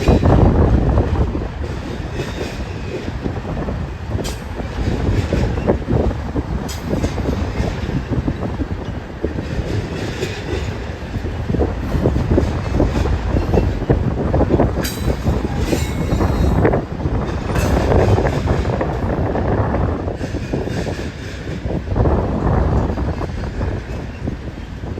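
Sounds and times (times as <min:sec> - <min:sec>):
train wheels clattering on rails: 0:00.0 - 0:24.9
sharp metallic clanks: 0:14.8 - 0:16.3.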